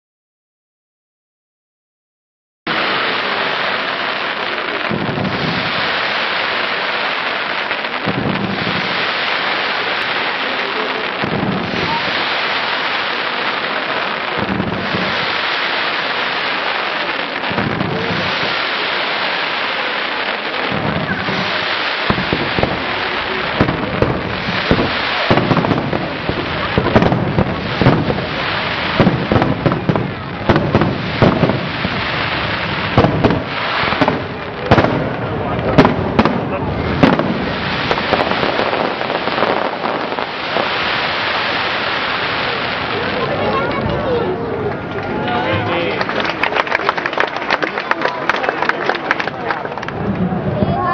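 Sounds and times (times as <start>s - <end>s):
sharp fireworks bangs: 2.7s - 44.9s
fireworks booms: 2.7s - 45.1s
fireworks crackling: 2.7s - 50.9s.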